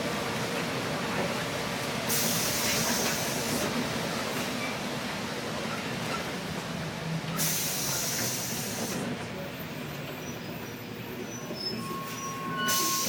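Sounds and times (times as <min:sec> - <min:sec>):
bus interior rumble: 0:00.0 - 0:13.0
loud air hiss: 0:02.1 - 0:03.6, 0:07.4 - 0:09.0.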